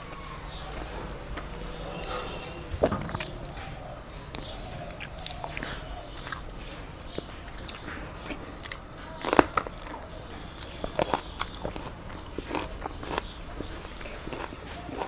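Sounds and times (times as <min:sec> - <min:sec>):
person chewing food: 0:00.0 - 0:15.0
wet mouth clicks: 0:04.3 - 0:06.5.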